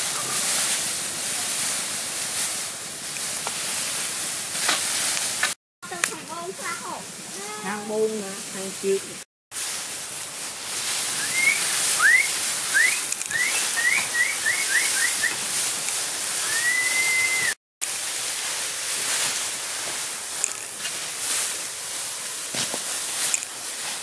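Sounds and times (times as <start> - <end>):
steady high hiss: 0.0 - 24.0
bird whistling chirps: 11.2 - 15.4, 16.4 - 17.6.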